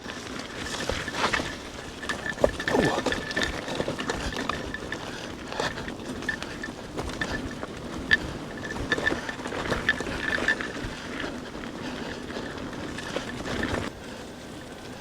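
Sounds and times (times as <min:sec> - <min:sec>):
bike knocks and rattles: 0:00.0 - 0:13.9
tyre and wind noise: 0:00.0 - 0:13.9
thin high motor whine: 0:13.9 - 0:15.0.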